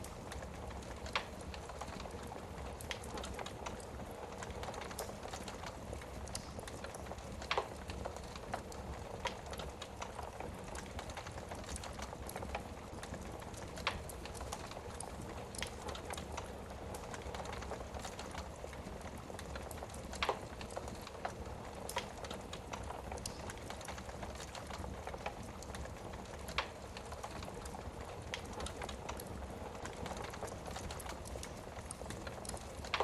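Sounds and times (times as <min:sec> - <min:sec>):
wood fire crackling: 0:00.0 - 0:33.0
fire pops: 0:19.4 - 0:33.0.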